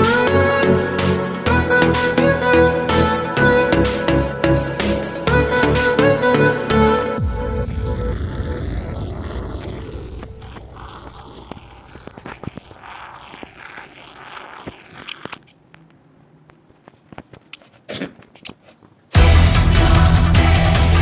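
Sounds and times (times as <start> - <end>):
music: 0.0 - 8.1, 19.2 - 21.0
loud music: 0.0 - 8.6, 19.2 - 21.0.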